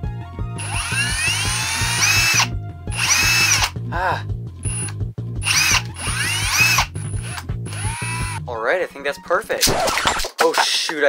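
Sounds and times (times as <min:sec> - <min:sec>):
background music with beat: 0:00.0 - 0:08.5
drill whine: 0:00.6 - 0:03.7, 0:04.6 - 0:08.4.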